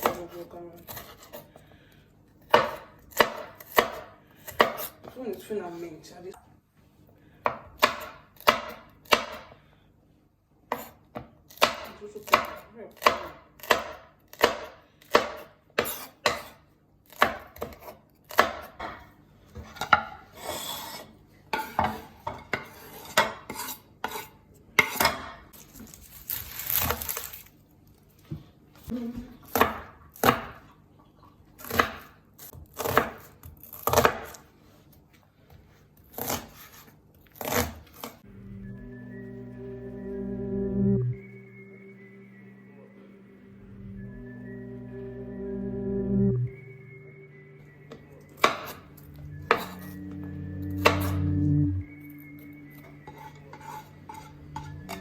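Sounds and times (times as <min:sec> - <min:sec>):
knife chopping on cutting board: 0:02.5 - 0:05.2, 0:07.4 - 0:09.5, 0:10.7 - 0:20.2, 0:31.6 - 0:34.4
knife scraping cutting board: 0:15.8 - 0:16.6, 0:19.6 - 0:25.1, 0:36.1 - 0:38.2, 0:53.0 - 0:55.0.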